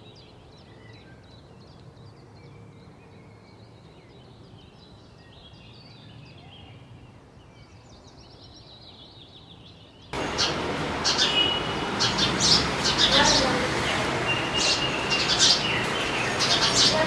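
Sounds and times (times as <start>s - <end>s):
small songbirds chirping: 0.0s - 17.0s
sharp high bird chirps: 10.2s - 17.0s.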